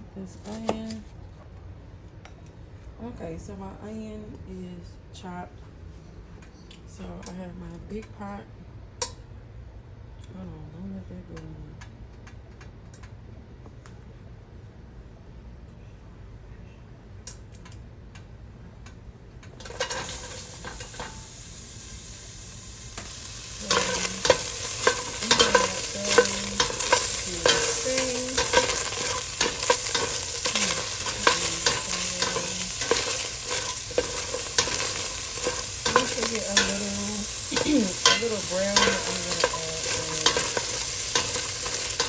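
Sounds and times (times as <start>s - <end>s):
utensil scraping and knocking pot: 19.6s - 21.2s, 23.0s - 42.0s
food sizzling in a pot: 19.6s - 42.0s.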